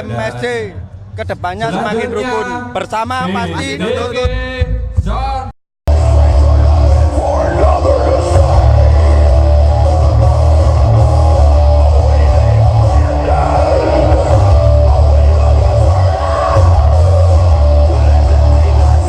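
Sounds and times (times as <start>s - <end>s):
deep bass: 3.7s - 19.0s
guitar: 5.9s - 19.0s
loud rock music: 5.9s - 19.0s.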